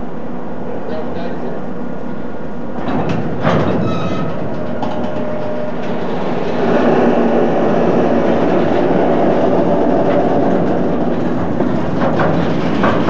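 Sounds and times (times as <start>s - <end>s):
train wagons rumbling and rattling: 0.0s - 13.0s.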